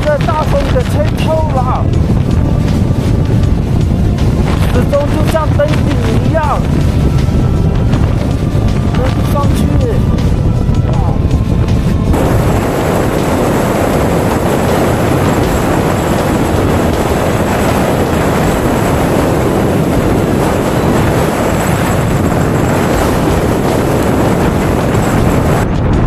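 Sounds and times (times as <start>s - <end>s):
strong wind on microphone: 0.0s - 26.0s.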